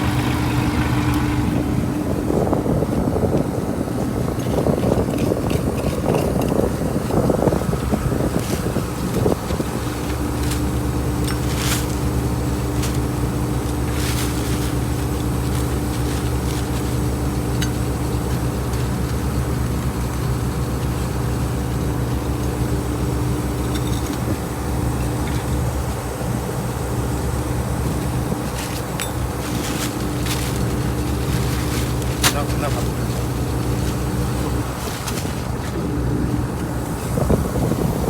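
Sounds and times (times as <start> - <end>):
heavy engine droning: 0.0 - 38.0.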